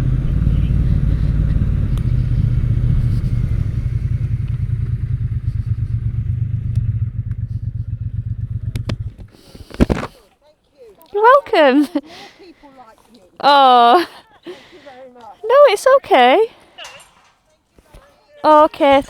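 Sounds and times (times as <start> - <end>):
motorcycle engine slowing: 0.0 - 10.2.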